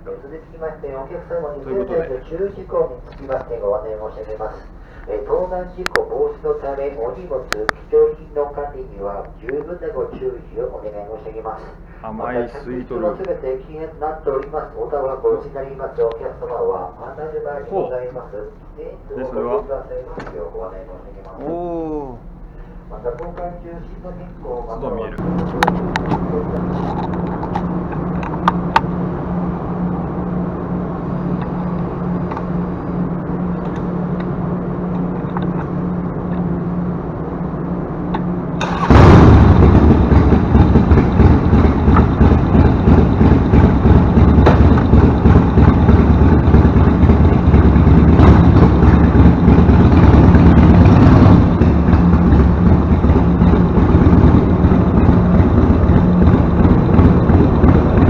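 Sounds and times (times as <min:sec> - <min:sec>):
steady low hum: 0:00.0 - 0:58.0
motorcycle engine starting and running: 0:18.9 - 0:58.0.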